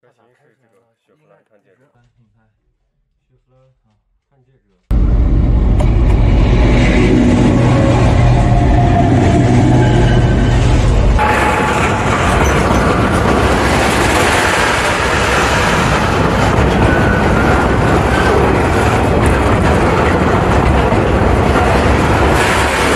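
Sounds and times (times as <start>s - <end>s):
train wheels on rails: 5.5s - 22.9s.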